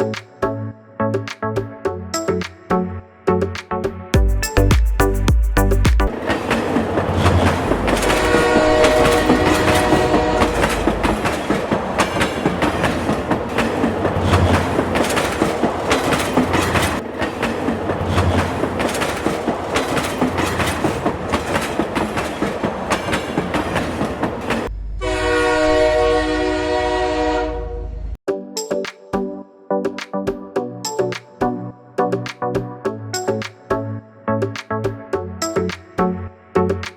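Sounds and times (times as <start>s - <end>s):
train wheels clattering on rails: 6.1s - 24.7s
train horn: 7.2s - 11.4s, 24.9s - 28.1s.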